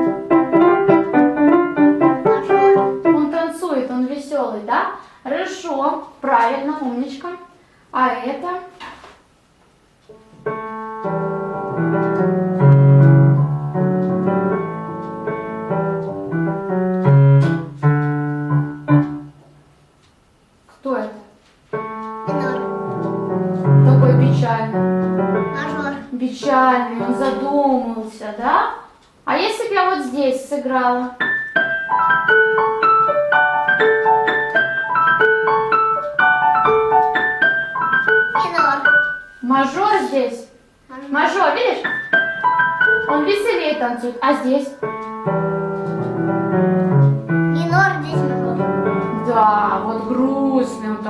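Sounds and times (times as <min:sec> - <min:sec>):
sad piano melody: 0:00.0 - 0:03.4, 0:10.2 - 0:19.5, 0:21.8 - 0:27.6, 0:31.1 - 0:39.4, 0:41.8 - 0:51.0.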